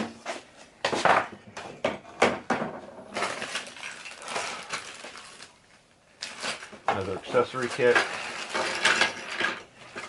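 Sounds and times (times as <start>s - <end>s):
rustling: 3.0s - 10.0s
small parts clicking and knocking: 6.2s - 10.0s.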